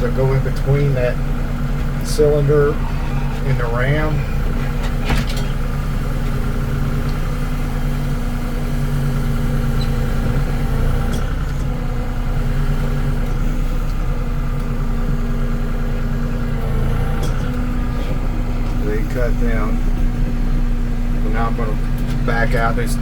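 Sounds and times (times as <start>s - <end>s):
hydraulics working: 0.0s - 23.0s
tractor diesel engine running: 0.0s - 23.0s.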